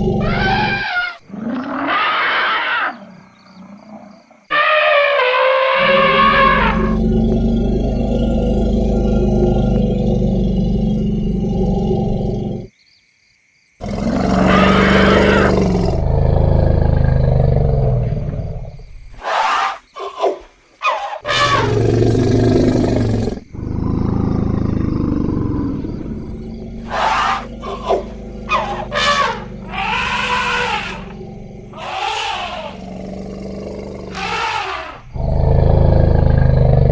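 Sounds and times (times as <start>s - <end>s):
elephant roaring calls: 0.0s - 12.6s, 13.9s - 18.1s, 20.8s - 36.9s
elephant high trumpeting squeals: 0.2s - 3.0s, 4.5s - 7.0s, 19.2s - 21.7s, 26.8s - 31.2s, 31.8s - 32.8s, 34.1s - 35.1s
elephant low moaning rumble: 6.2s - 12.7s, 21.8s - 31.8s, 35.1s - 36.9s.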